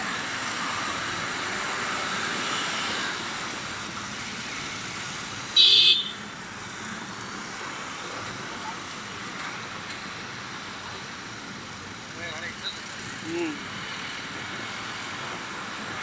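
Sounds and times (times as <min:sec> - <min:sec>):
passing vehicles hum: 0:00.0 - 0:16.0
vehicle horn beep: 0:05.6 - 0:06.2.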